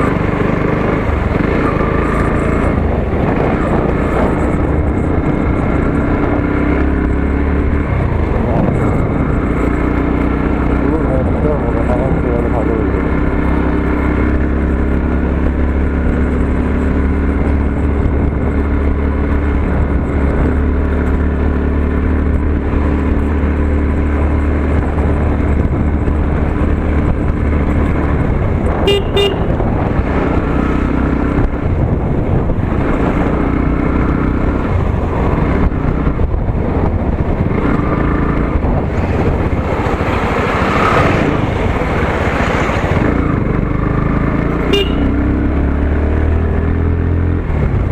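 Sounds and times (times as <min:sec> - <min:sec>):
motorcycle engine running: 0:00.0 - 0:47.9
vehicle horn short beeps: 0:28.8 - 0:29.6, 0:44.7 - 0:45.3.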